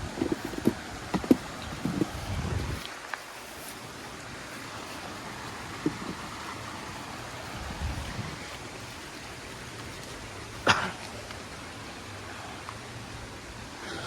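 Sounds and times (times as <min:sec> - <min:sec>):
handling bumps: 0:00.0 - 0:10.8
outdoor background hiss: 0:00.0 - 0:14.0.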